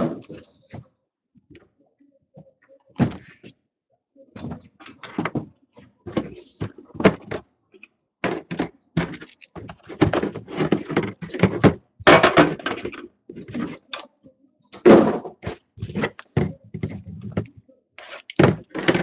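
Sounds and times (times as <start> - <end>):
card packs being handled and opened: 8.3 - 11.8, 15.4 - 19.0.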